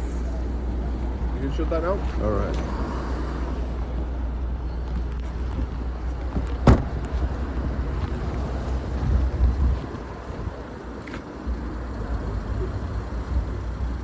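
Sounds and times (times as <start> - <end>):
car boot lid slamming: 6.3 - 7.1
wind on microphone: 8.0 - 10.7.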